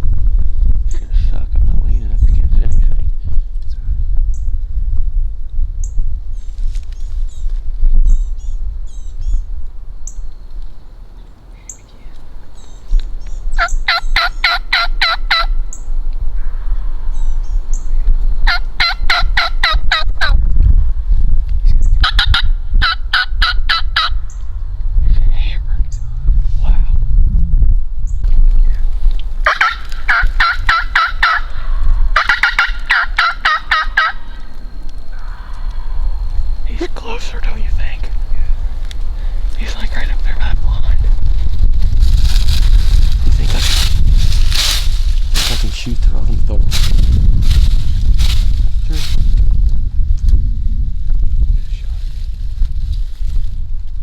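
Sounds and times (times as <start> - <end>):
small birds chirping: 5.8 - 14.5, 15.6 - 18.8, 28.0 - 41.1
turkey gobbling: 13.6 - 15.8, 18.4 - 20.4, 22.0 - 24.3, 29.4 - 39.4.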